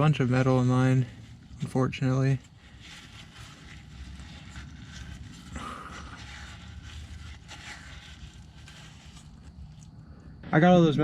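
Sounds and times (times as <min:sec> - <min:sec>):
faint wiping and scraping: 0:00.0 - 0:10.5
light ticks of handling: 0:00.2 - 0:10.3.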